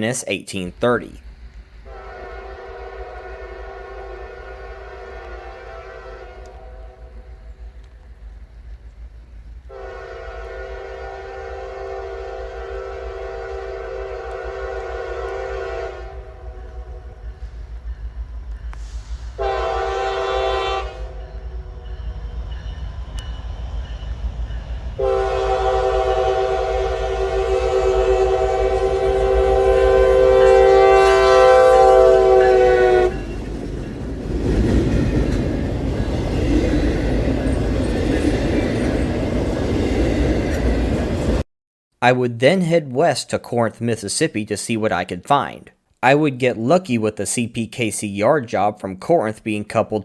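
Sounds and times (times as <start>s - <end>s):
rumble of passing train: 1.2s - 41.4s
locomotive air horn blasts: 1.9s - 7.2s, 9.7s - 17.2s, 18.8s - 21.3s, 25.0s - 33.3s.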